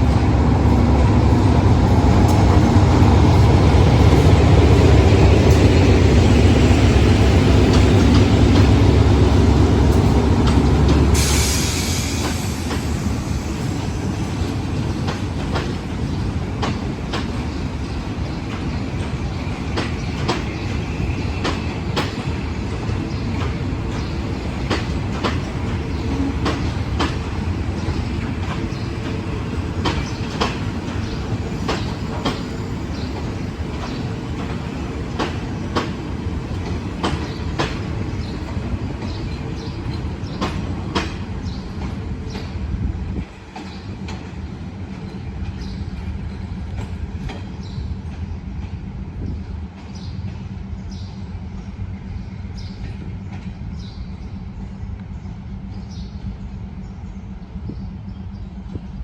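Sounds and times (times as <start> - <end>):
train rumbling past: 0.0 - 59.0
wheels clicking over rail joints: 21.4 - 42.6.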